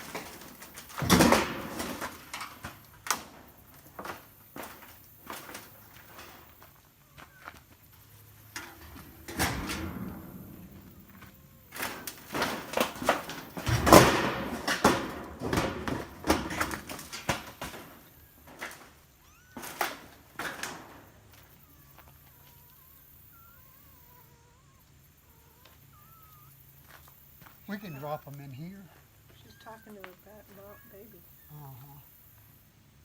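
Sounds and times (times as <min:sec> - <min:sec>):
sharp knocks and clatters: 0:00.0 - 0:06.8, 0:07.9 - 0:19.0.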